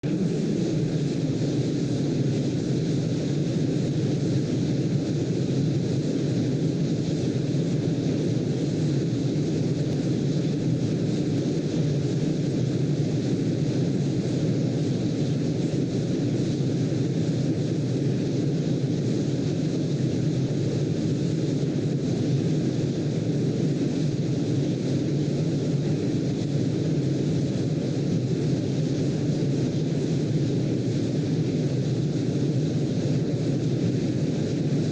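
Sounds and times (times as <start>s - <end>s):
low rushing brown noise: 0.0s - 34.9s.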